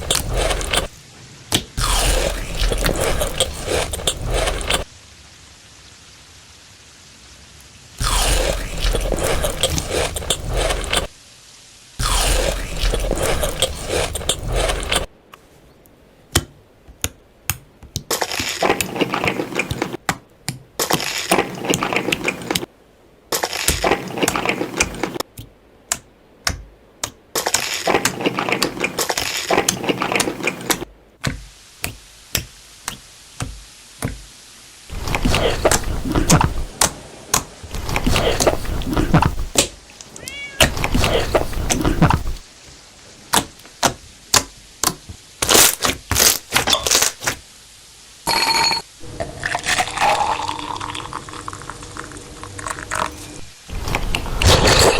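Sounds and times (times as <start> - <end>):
chewing crunchy food: 0.0 - 0.9, 1.8 - 4.9, 8.0 - 11.1, 12.0 - 15.1.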